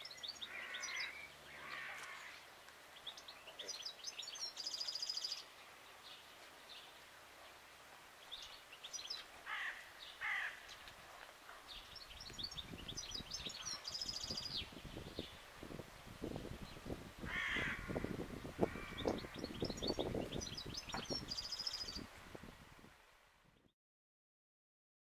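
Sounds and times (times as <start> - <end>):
harsh crow-like bird calls: 0.4 - 2.4, 9.4 - 10.8, 17.2 - 20.0.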